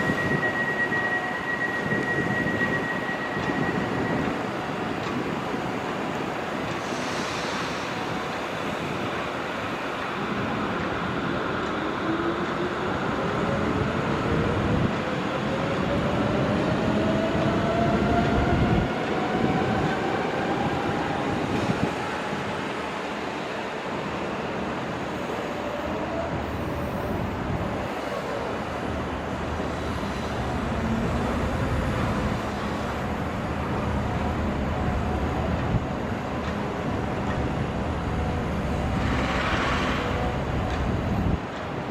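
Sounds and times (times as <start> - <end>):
heavy vehicle rumble: 29.4 - 41.4.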